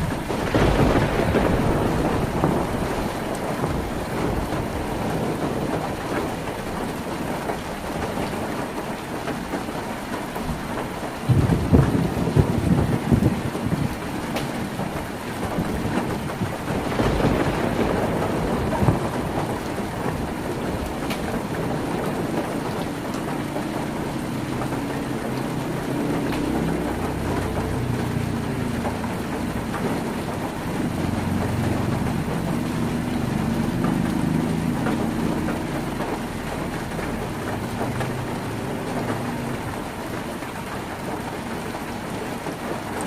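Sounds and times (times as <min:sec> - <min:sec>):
thunder rumble: 0:00.0 - 0:42.8
heavy rain on a tin roof: 0:00.0 - 0:43.0.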